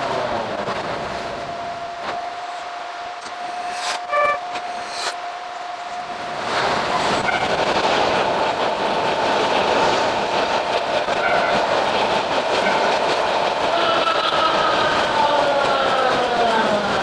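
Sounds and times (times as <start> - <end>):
electric train running noise: 0.0 - 17.0.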